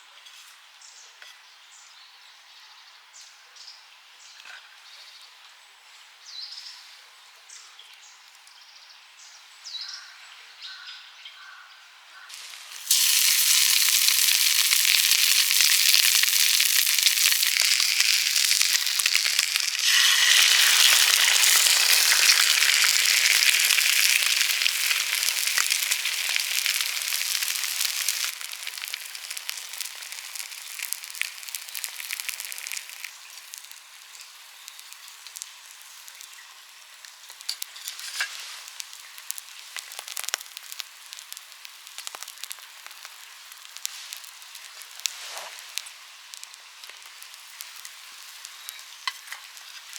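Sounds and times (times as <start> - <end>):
food sizzling in a frying pan: 12.1 - 49.9.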